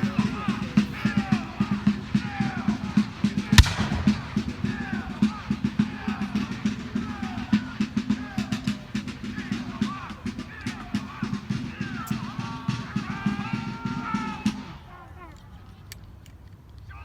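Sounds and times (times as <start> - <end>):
fast steady drumming: 1.2 - 13.4
sharp loud bang: 3.6 - 5.7.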